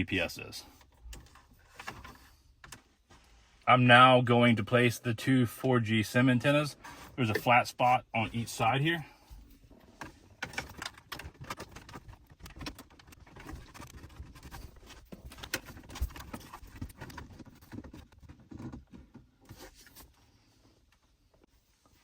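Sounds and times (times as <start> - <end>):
plastic and cable clicks and rustles: 9.9 - 20.0.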